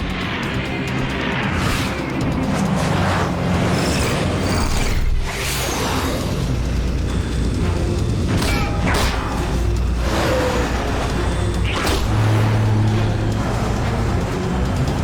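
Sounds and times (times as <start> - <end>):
dramatic cartoon action music: 0.0 - 15.0.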